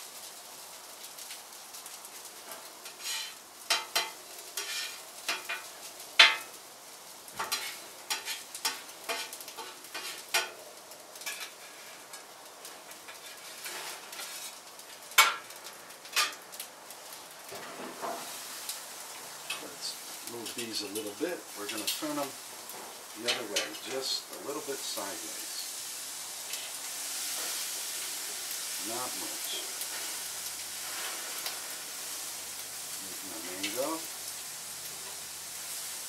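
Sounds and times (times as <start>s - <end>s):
food sizzling: 0.0s - 36.0s
metal utensil scraping a pan: 2.5s - 5.6s, 7.4s - 10.6s, 11.2s - 12.2s, 13.1s - 14.6s, 16.1s - 16.4s.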